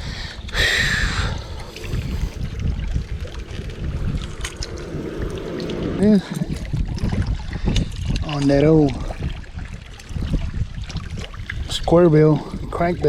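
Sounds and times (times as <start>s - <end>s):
wind buffeting microphone: 0.0s - 13.0s
short rushing noise: 1.9s - 7.2s.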